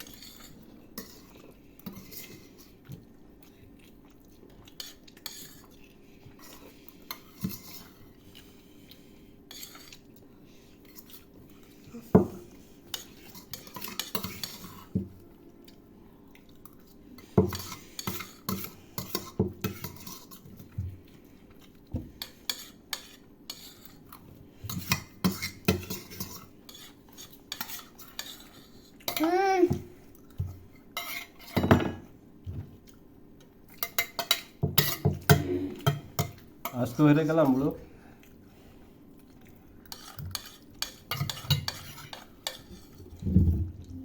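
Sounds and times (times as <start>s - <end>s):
cutlery clinking on plates: 33.8s - 36.8s, 40.0s - 42.9s.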